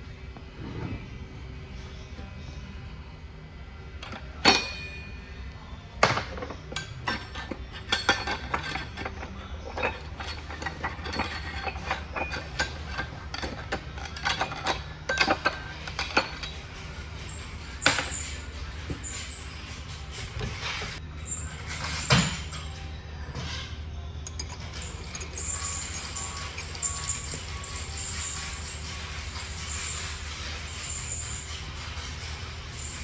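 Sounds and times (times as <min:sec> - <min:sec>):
ringing metal strikes: 0:04.4 - 0:05.4
metal parts clinking: 0:06.1 - 0:21.0, 0:24.2 - 0:33.0.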